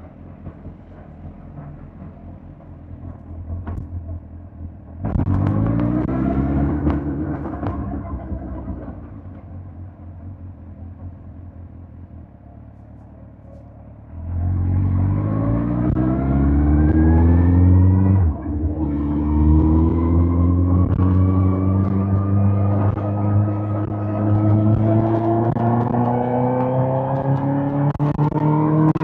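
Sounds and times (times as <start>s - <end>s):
motorcycle engine revving: 5.0s - 9.3s, 14.1s - 29.0s.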